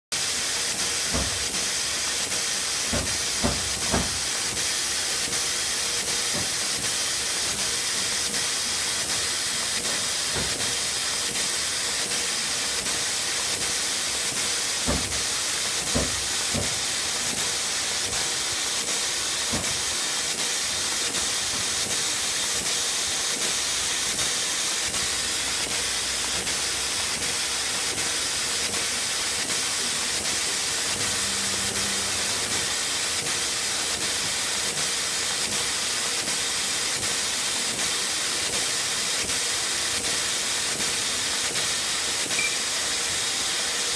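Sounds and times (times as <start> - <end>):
air valve hissing: 0.2 - 35.9
louder mechanical knocks: 1.1 - 1.6, 2.9 - 4.3, 14.8 - 16.8, 19.5 - 19.8.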